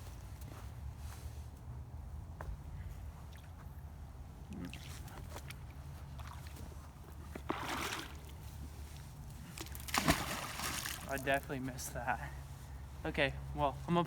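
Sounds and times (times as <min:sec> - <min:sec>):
water sloshing and splashing: 0:03.1 - 0:11.6.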